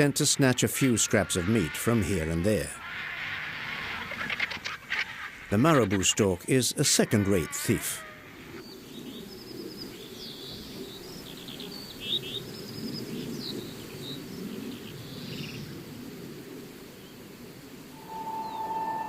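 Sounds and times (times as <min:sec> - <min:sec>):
bird chirps and trills: 0:17.9 - 0:19.0.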